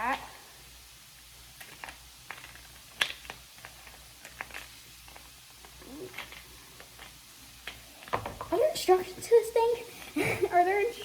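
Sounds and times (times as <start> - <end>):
plastic toy pieces clicking: 1.6 - 5.3.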